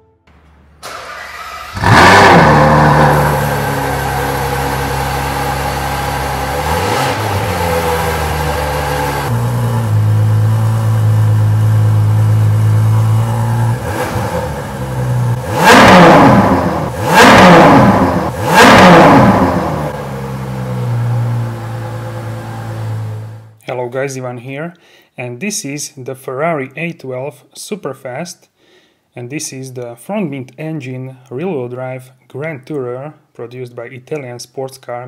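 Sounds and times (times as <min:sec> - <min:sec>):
car engine idling and revving: 0:00.8 - 0:23.6.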